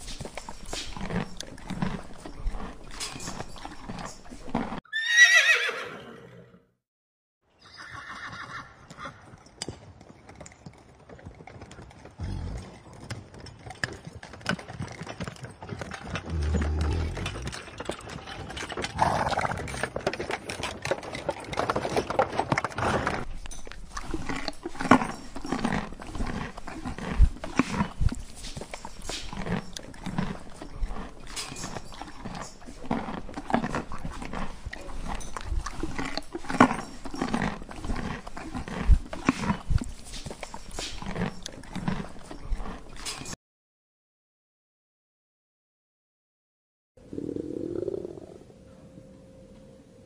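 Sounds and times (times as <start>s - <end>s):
horses munching grass: 0.0s - 5.7s, 12.1s - 43.4s.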